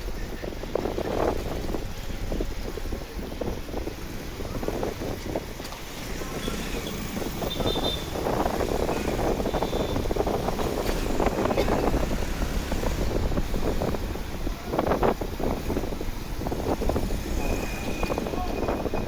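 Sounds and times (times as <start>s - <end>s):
street traffic: 0.0s - 19.0s
wind buffeting microphone: 0.0s - 19.0s
motorcycle engine: 3.9s - 18.6s.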